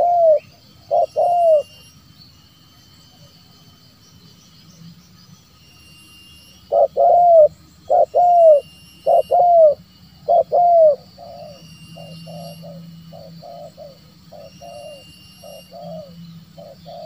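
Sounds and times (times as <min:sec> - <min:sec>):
dove cooing: 0:00.0 - 0:01.8, 0:06.7 - 0:17.0.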